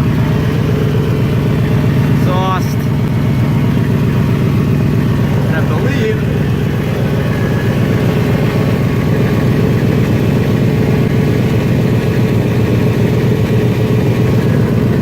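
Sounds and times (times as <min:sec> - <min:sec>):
exhaust leak puffing: 0:00.0 - 0:15.0
van engine idling: 0:00.0 - 0:15.0.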